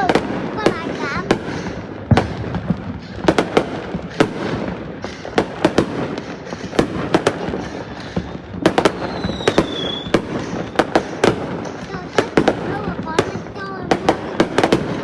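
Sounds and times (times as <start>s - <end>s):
fireworks crackling: 0.0s - 15.0s
sharp firework bangs: 0.0s - 15.0s
high firework whistle: 1.3s - 12.6s.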